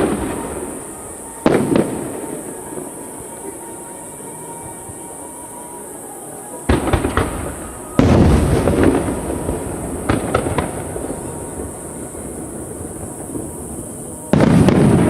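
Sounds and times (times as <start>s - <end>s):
firework crackling: 0.0s - 15.0s
firework shells bursting: 6.6s - 15.0s.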